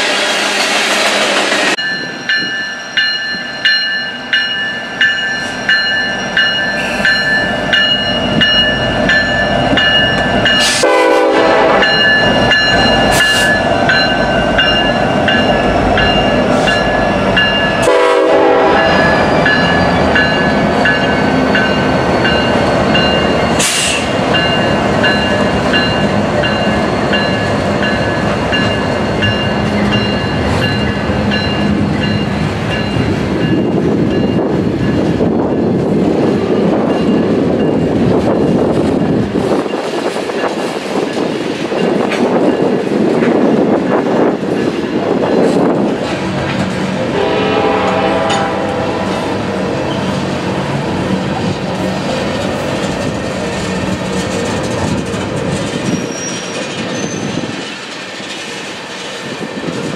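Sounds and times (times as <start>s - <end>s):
diesel locomotives running: 0.0s - 59.9s
wheels clacking over rail joints: 51.4s - 59.9s.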